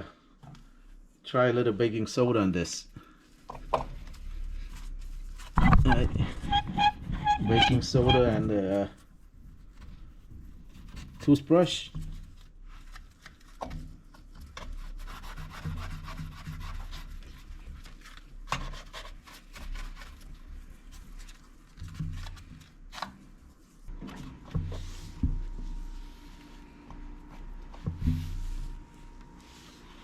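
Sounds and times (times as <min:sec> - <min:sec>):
toothbrush scrubbing: 0:14.7 - 0:17.5.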